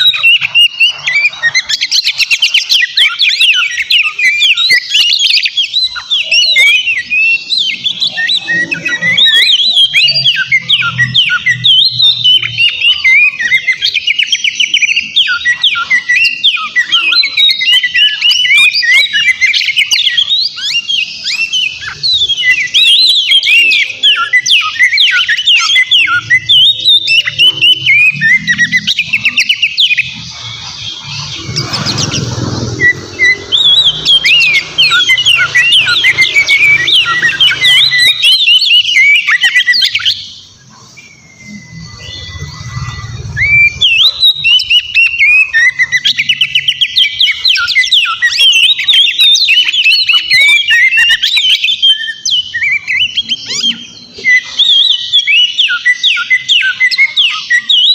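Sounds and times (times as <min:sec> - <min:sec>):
bird singing whistles and chirps: 0:00.0 - 0:57.9.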